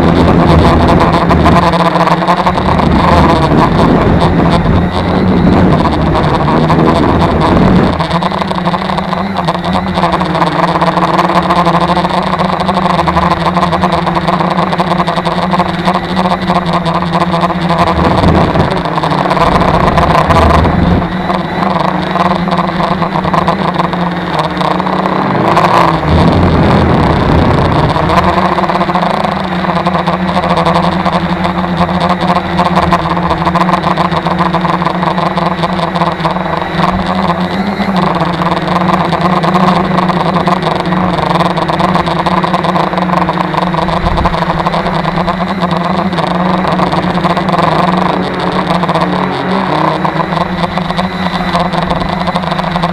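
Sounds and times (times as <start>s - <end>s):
wind rumble on microphone: 0.0s - 11.3s, 15.4s - 24.2s, 24.9s - 34.1s, 43.8s - 48.0s
drone propellers whirring: 0.0s - 52.9s.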